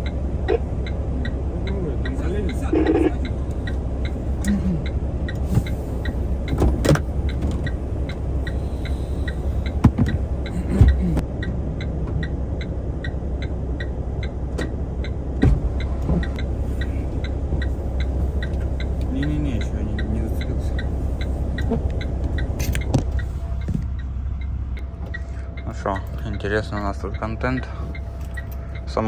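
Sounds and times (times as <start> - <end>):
diesel engine idling: 0.0 - 29.0
even ticking: 0.0 - 29.0
knocks and bumps: 9.6 - 11.2, 15.4 - 16.5, 21.6 - 24.0.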